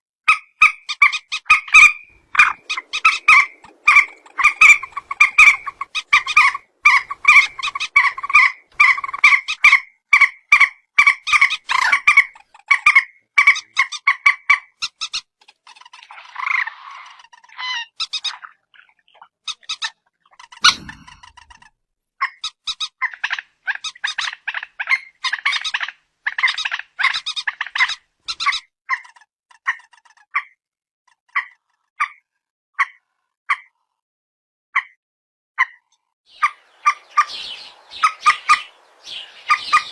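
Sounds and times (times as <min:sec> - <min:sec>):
bird calling in fast runs: 0:00.3 - 0:18.5, 0:35.6 - 0:39.9.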